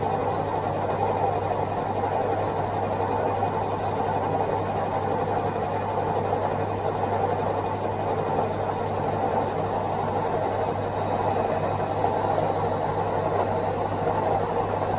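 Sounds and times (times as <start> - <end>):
washing machine spinning: 0.0 - 14.9.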